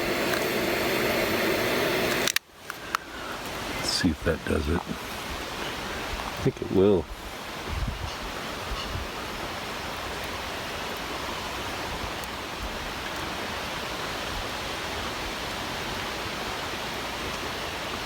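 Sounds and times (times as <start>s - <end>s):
fire crackling: 0.0s - 6.6s
campfire hissing: 0.0s - 18.0s.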